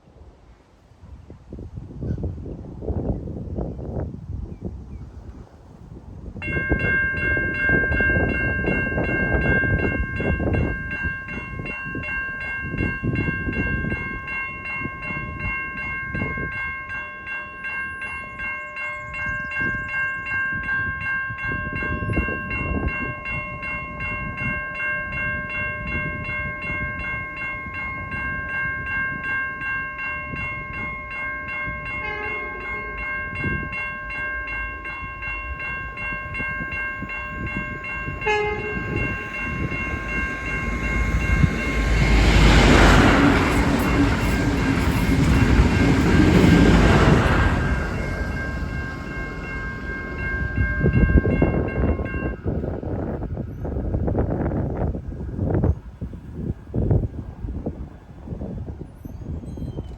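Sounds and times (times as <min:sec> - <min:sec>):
level crossing bells ringing: 0:06.4 - 0:52.7.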